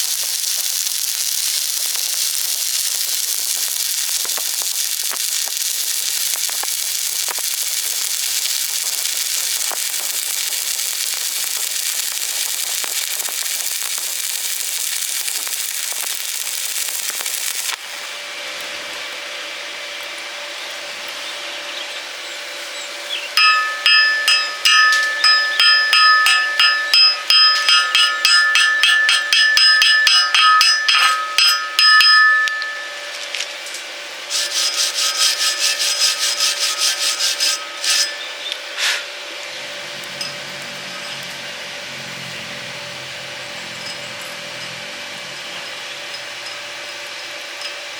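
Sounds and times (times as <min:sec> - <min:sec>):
electric arc welding crackle: 0:00.0 - 0:21.2, 0:22.1 - 0:47.9
scraping strokes on ringing steel: 0:23.4 - 0:39.1.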